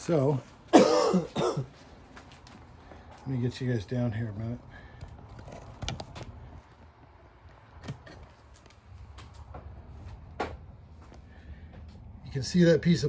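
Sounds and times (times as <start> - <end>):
handling clicks and knocks: 5.0 - 6.4.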